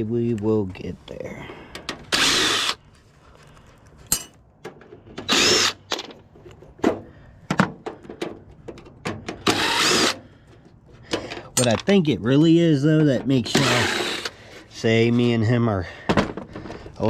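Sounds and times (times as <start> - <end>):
power tool burst: 9.4 - 10.2, 13.5 - 14.3
metal parts knocking and clanking: 11.0 - 11.9.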